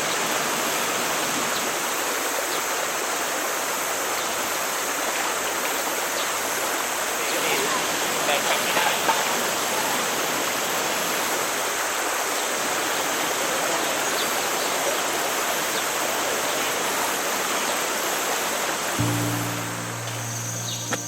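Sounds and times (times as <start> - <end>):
stream water rushing: 0.0 - 21.0
low sustained music notes: 19.0 - 21.0.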